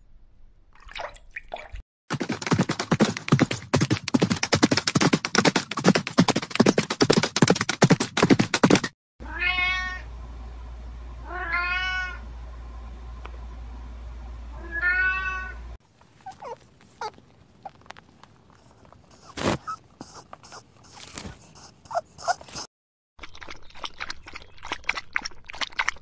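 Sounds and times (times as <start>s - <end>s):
cat meowing: 9.2s - 10.0s, 11.3s - 12.2s, 14.6s - 15.6s, 16.2s - 17.8s
low steady hum: 9.3s - 22.5s.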